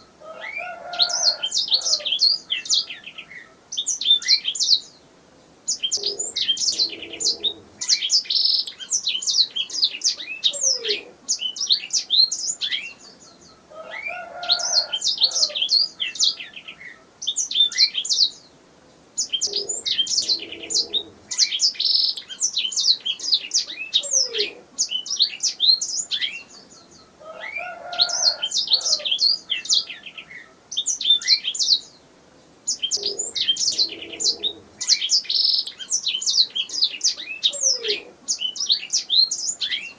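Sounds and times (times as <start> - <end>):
canary chirping and trilling: 32.7 - 39.9.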